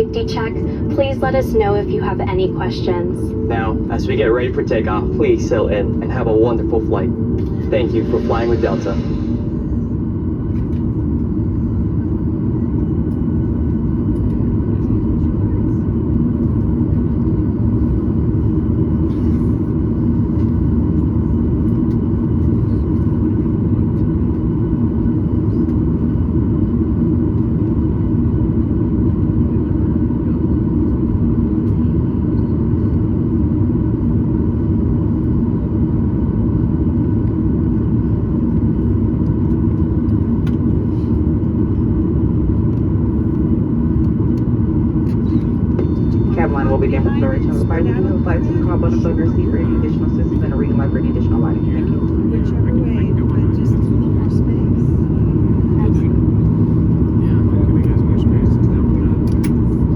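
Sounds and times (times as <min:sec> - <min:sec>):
aircraft cabin rumble and hum: 0:00.0 - 0:59.9
faint whining tones: 0:45.0 - 0:55.0.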